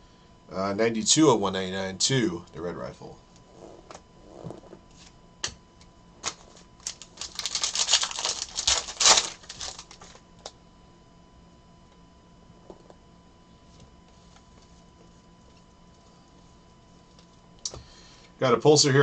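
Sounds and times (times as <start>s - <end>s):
plastic packaging crinkling: 6.2s - 10.5s.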